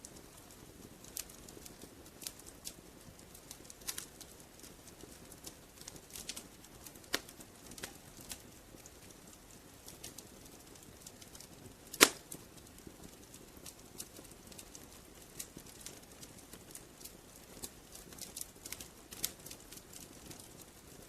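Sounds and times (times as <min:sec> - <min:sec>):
wood fire crackling: 0:00.0 - 0:21.0
loud pop of burning wood: 0:11.9 - 0:12.4.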